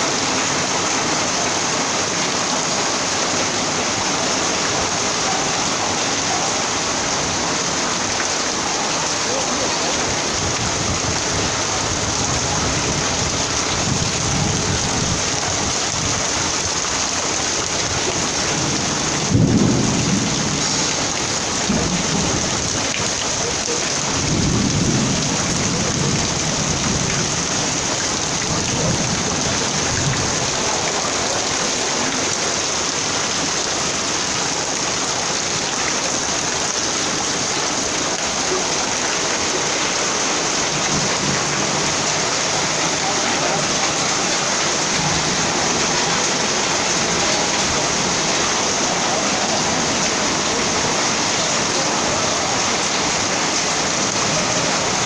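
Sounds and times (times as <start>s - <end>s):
heavy rain pouring: 0.0s - 55.0s
thunder crack and rumble: 18.6s - 22.9s.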